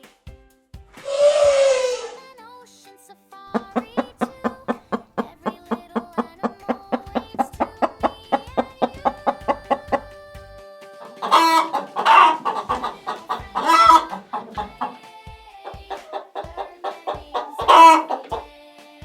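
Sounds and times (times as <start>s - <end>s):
chicken calls: 1.1s - 2.2s, 3.5s - 18.5s
plucked tune with steady beat: 3.6s - 10.5s.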